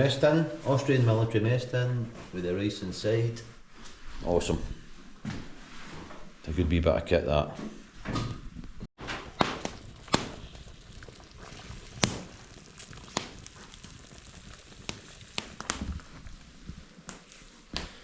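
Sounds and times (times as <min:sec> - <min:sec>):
fire low hiss: 0:09.0 - 0:18.0
wood fire crackling and popping: 0:09.0 - 0:18.0.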